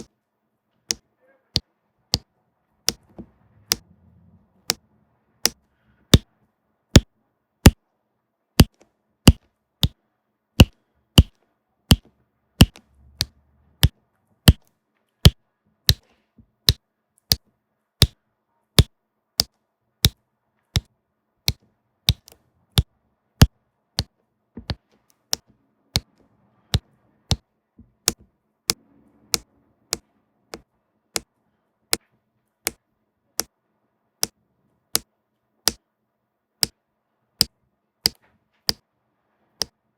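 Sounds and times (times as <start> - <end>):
pen tapping on canvas: 10.6 - 13.3.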